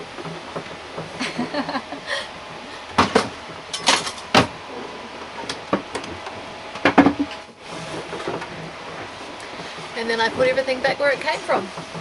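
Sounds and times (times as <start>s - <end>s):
utensils and lockers knocking: 3.0s - 4.5s.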